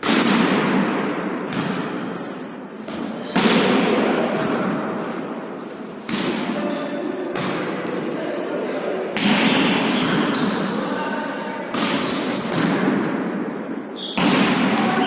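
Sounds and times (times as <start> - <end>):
ball hits echoing in a hall: 0.0 - 15.0
shoe squeaks on court: 6.2 - 7.4, 8.2 - 10.8, 12.0 - 12.5, 13.6 - 14.2.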